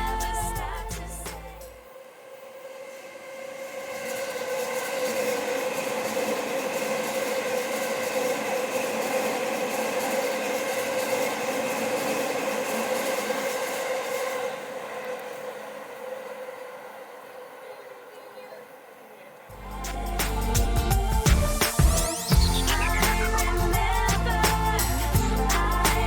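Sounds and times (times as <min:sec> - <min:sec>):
electric train whine: 0:01.8 - 0:25.8
rail and wheel noise: 0:01.9 - 0:20.6.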